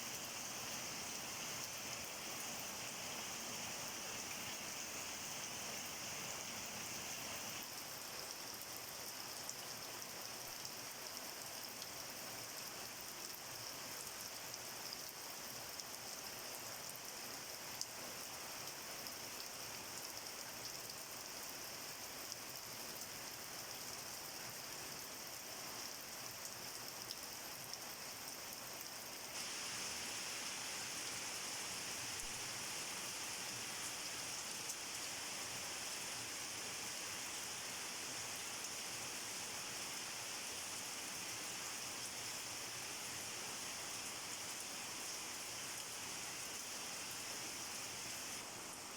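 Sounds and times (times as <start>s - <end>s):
rain falling: 29.3s - 48.9s.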